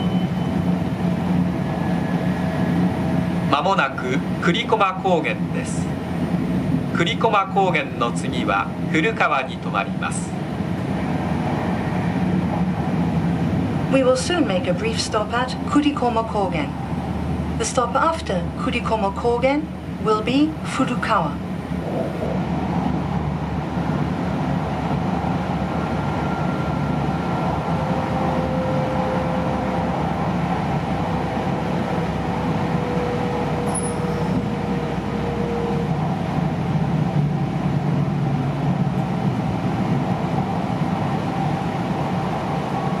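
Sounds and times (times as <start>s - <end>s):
train running noise rumble: 0.0s - 43.0s.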